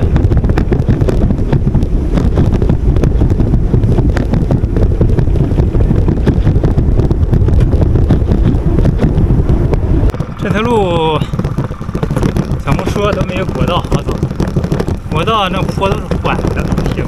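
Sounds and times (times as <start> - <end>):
wind buffeting microphone: 0.0 - 17.0
bike clicks and knocks: 7.6 - 17.0.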